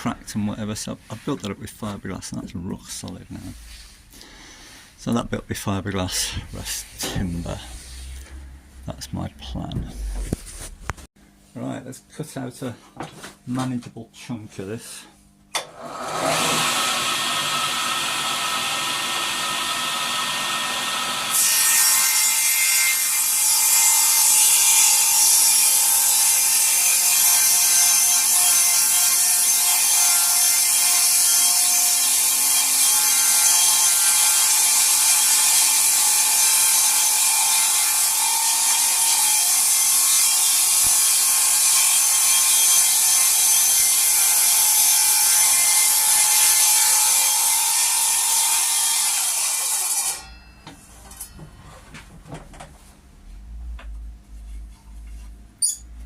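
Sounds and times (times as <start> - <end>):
electric saw cutting wood: 15.6 - 50.3.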